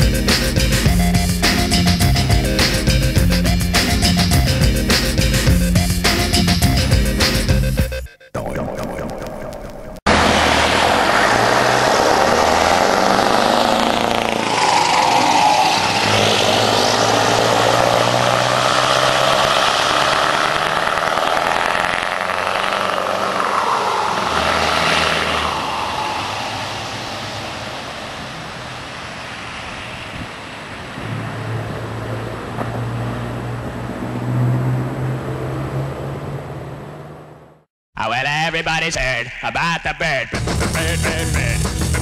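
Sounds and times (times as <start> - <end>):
heavy truck engines passing: 10.1 - 37.7.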